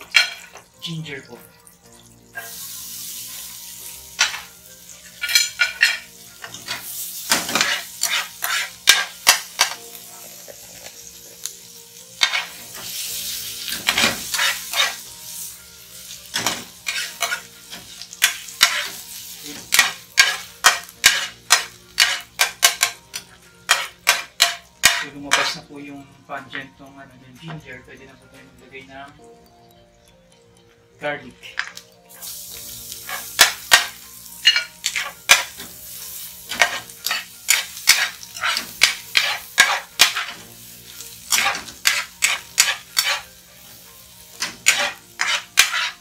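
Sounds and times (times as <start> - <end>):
ginger sizzling in oil: 0.0 - 46.0
spatula scraping a pan: 5.1 - 11.5, 12.2 - 13.0, 13.6 - 15.1, 16.4 - 25.7, 33.0 - 35.7, 36.5 - 43.8, 44.4 - 46.0.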